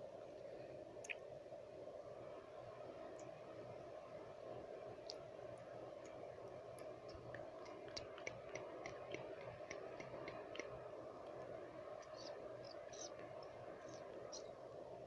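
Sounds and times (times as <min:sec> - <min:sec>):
white-noise hiss: 0:00.0 - 0:15.0
tongue and lip clicks: 0:01.0 - 0:01.2, 0:06.8 - 0:10.8.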